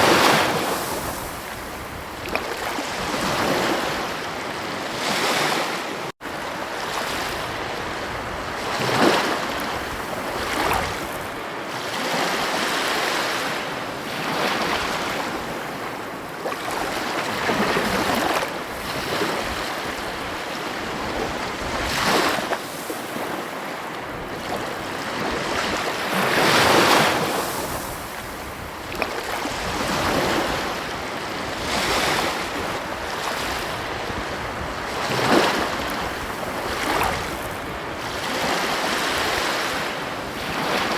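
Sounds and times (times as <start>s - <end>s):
ocean waves breaking on beach: 0.0s - 40.9s.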